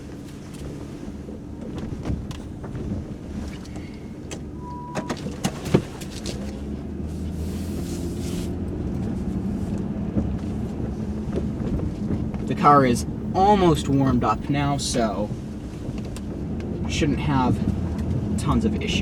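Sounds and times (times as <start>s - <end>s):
car engine idling: 0.0s - 19.0s
short beep: 4.6s - 5.2s.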